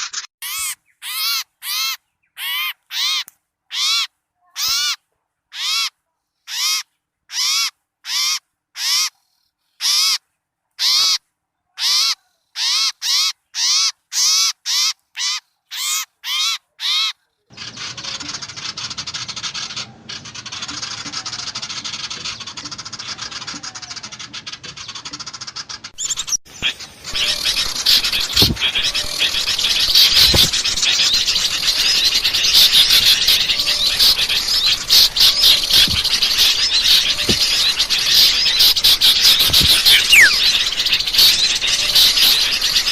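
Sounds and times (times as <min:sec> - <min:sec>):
chatter of many birds: 0:10.8 - 0:42.9
harsh bird call: 0:25.9 - 0:42.9.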